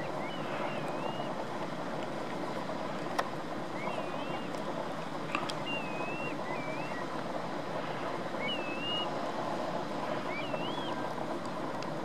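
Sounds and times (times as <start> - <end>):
wavering bird whistles: 0.0 - 1.3, 3.8 - 4.5, 5.6 - 7.0, 8.4 - 9.1, 10.3 - 11.0
rushing water and wind: 0.0 - 12.0.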